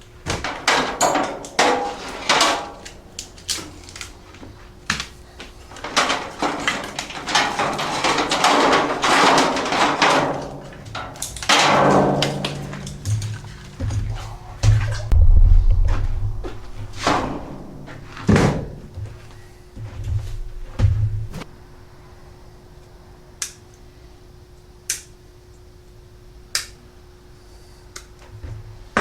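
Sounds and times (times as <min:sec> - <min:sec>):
tools clunking and knocking: 0:00.3 - 0:21.4
rustling and scraping: 0:00.3 - 0:21.5.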